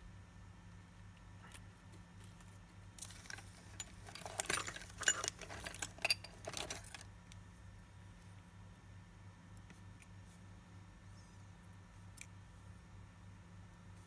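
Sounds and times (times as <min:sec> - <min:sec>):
small metal parts clinking: 0:03.0 - 0:07.1.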